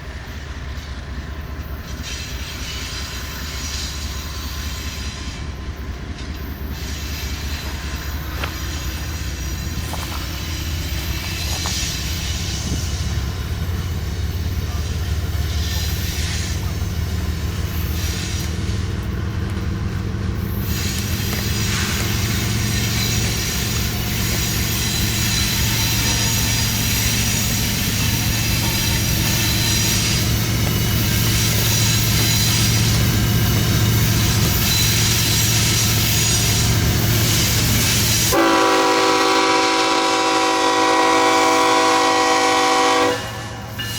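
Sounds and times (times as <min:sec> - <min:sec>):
locomotive engines rumbling: 0:00.0 - 0:43.9
steel wheels on rail: 0:00.0 - 0:43.9
thin high squeal: 0:01.8 - 0:05.4, 0:06.4 - 0:16.7, 0:20.5 - 0:38.3, 0:43.4 - 0:43.9
locomotive air horn: 0:37.2 - 0:43.8.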